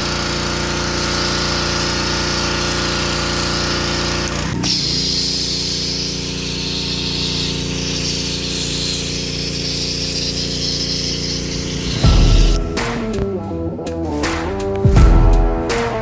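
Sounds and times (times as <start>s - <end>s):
foam cannon spraying hiss: 0.0s - 12.6s
pressure washer engine running: 0.0s - 12.9s.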